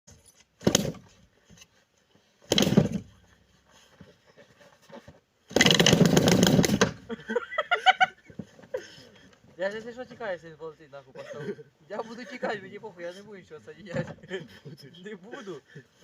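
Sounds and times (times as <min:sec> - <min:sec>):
small piston engine starting: 0:05.5 - 0:07.0.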